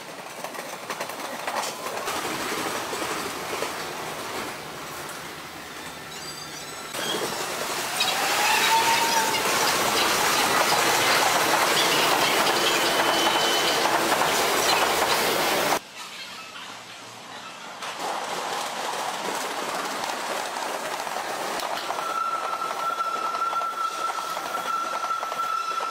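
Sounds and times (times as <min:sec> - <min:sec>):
train wheels rushing on rails: 0:00.0 - 0:15.8, 0:17.7 - 0:25.9
rising wheel squeal: 0:05.7 - 0:13.9, 0:21.8 - 0:25.9.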